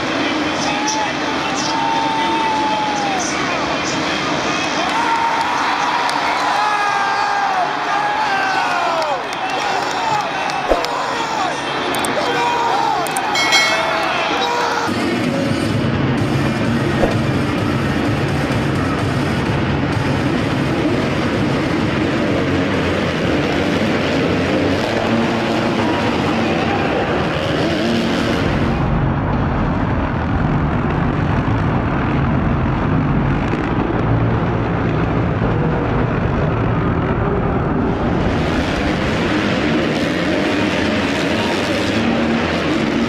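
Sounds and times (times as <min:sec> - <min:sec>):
motocross bike engines revving: 0:13.1 - 0:29.0, 0:30.8 - 0:43.0.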